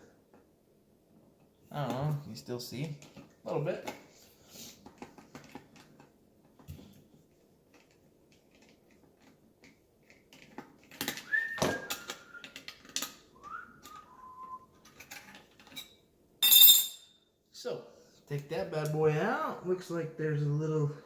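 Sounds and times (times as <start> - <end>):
person whistling notes: 11.3 - 12.6, 13.4 - 14.6.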